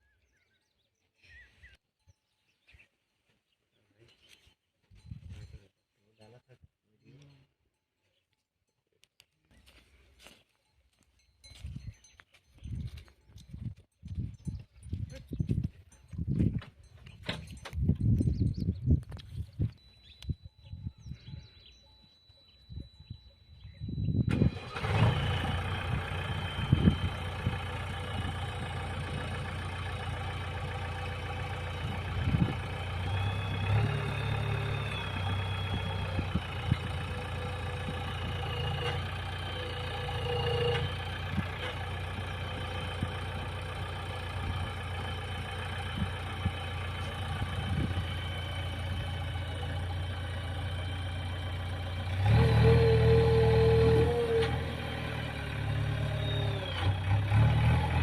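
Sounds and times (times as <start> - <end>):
heavy diesel engine idling: 23.8 - 58.0.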